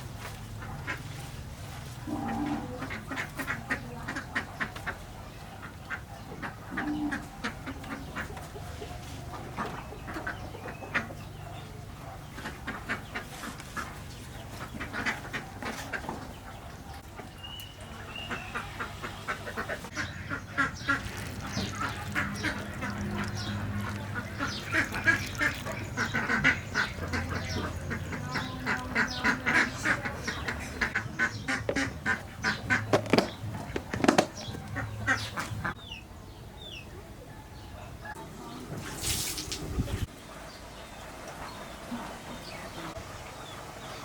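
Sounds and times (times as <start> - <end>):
birds calling in rapid notes: 9.6 - 36.8.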